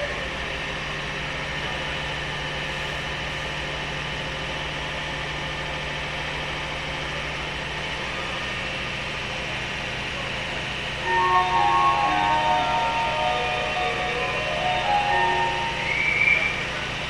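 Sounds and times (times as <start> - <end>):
train car hum and hiss: 0.0 - 17.0
low drone: 11.0 - 17.0.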